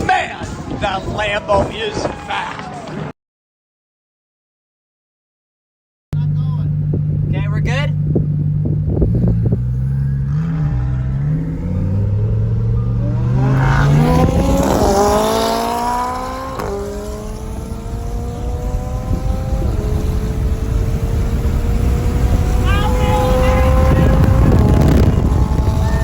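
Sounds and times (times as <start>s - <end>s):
sports car engine accelerating: 6.2s - 26.0s.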